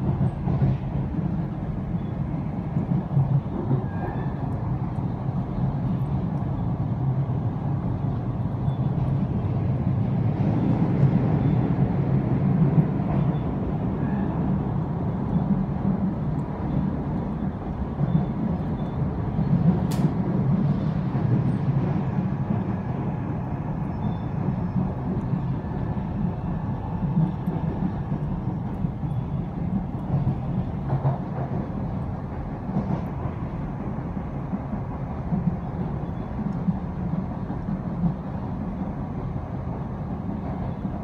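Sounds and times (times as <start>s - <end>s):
train rumbling from inside: 0.0s - 41.0s
sharp click: 19.9s - 20.2s.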